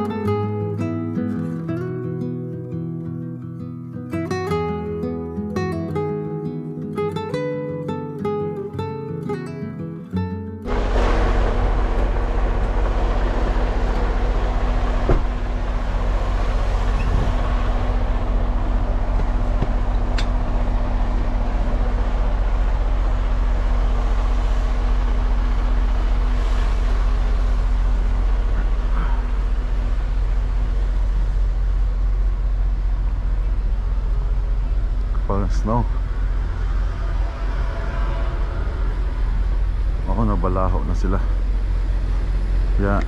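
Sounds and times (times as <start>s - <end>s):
diesel truck engine running: 10.7s - 43.0s.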